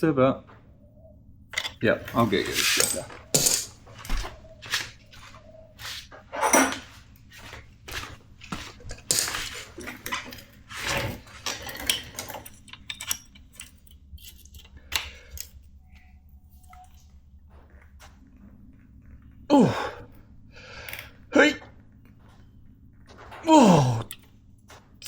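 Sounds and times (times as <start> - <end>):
metal hand tools clinking: 1.6 - 4.2, 6.4 - 7.0.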